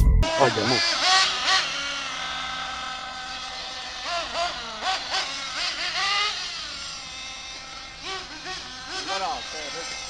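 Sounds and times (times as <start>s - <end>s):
small engine revving whine: 0.0s - 10.0s.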